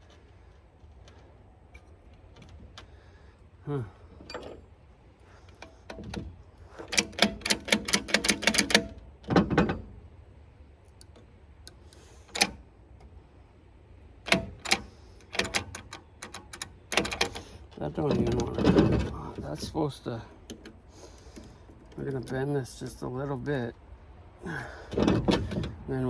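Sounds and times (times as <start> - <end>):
metal parts clicking and clinking: 4.2 - 4.7, 5.5 - 9.9, 14.3 - 23.0.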